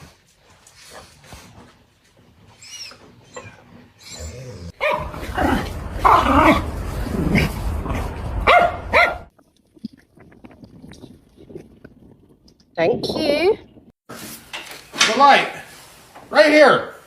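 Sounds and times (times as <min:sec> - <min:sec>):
dog barking and growling: 0:03.2 - 0:09.3.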